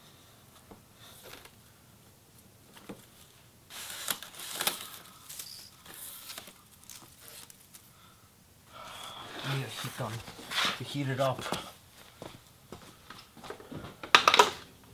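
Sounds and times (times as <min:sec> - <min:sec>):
plastic rustling and scraping: 0:02.7 - 0:07.9, 0:08.9 - 0:12.1.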